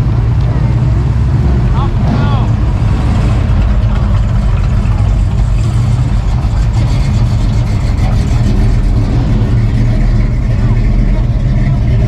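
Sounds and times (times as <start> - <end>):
car engine idling: 0.0 - 12.0
faint voices: 3.4 - 12.0.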